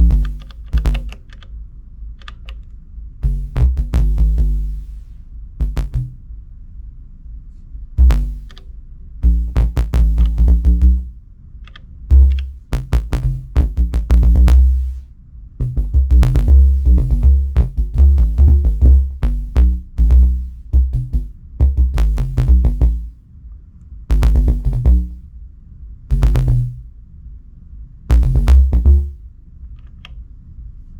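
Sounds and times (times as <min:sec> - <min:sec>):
drum machine hits: 0:00.0 - 0:01.3, 0:03.2 - 0:06.2, 0:08.0 - 0:08.6, 0:09.2 - 0:11.2, 0:12.1 - 0:23.2, 0:24.1 - 0:25.4, 0:26.1 - 0:26.9, 0:28.1 - 0:29.3
electronic bass line: 0:00.0 - 0:01.4, 0:03.2 - 0:06.3, 0:08.0 - 0:11.2, 0:12.1 - 0:23.2, 0:24.1 - 0:25.4, 0:26.1 - 0:27.0, 0:28.1 - 0:29.3.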